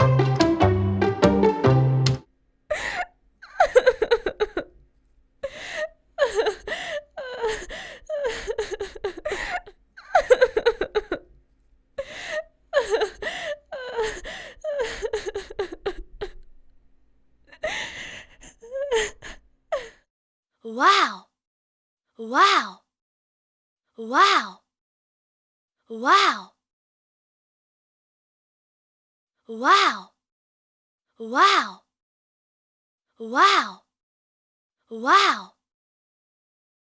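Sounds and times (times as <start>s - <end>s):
music: 0.0s - 2.3s
person sobbing and wailing: 2.7s - 4.7s, 5.4s - 11.2s, 12.0s - 16.4s, 17.6s - 20.0s.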